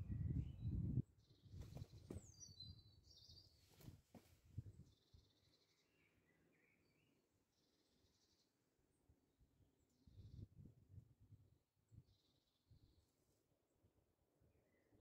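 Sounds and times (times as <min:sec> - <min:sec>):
faint bird chirps and whistles: 0:00.0 - 0:03.8.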